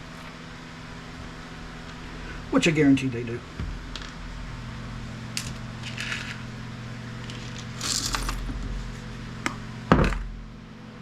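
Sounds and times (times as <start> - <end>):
low hum: 0.0 - 11.0
metal scrap parts clinking: 7.2 - 8.4.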